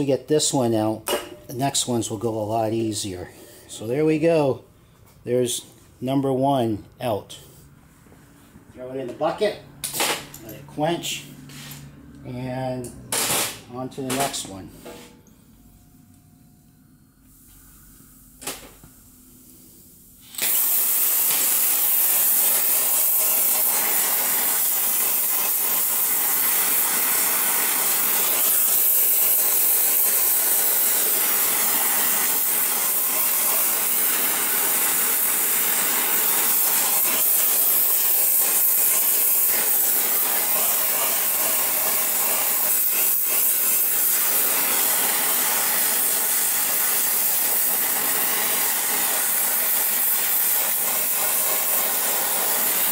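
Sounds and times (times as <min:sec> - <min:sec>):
gas torch flame hissing: 0:17.2 - 0:52.9.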